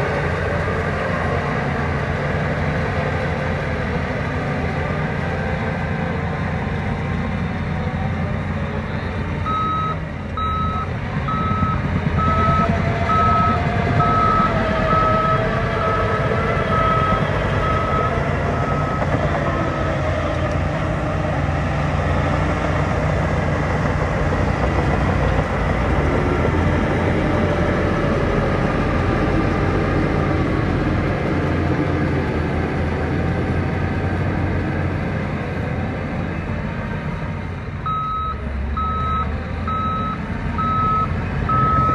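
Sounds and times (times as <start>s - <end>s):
heavy diesel machinery running: 0.0s - 41.9s.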